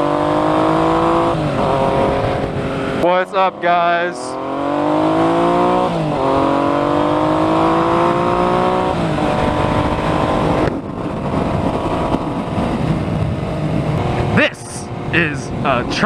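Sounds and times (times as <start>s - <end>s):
motorcycle engine accelerating: 0.0s - 16.0s
steady rush of noise: 9.7s - 16.0s.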